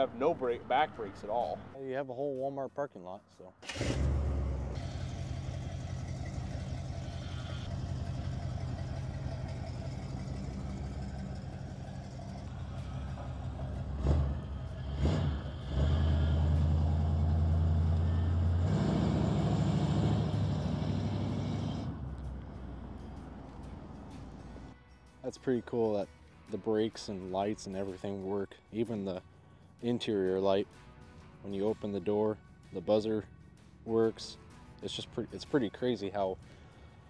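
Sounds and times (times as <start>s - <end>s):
engine revving blips: 3.6s - 24.7s
car engine running: 3.7s - 24.7s.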